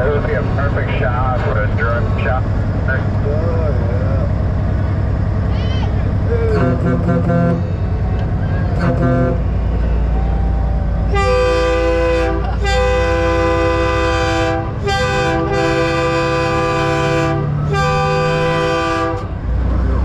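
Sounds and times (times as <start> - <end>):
diesel truck engine rumble: 0.0 - 20.0
train horn blasts: 6.5 - 7.9, 8.7 - 9.8, 11.1 - 19.4.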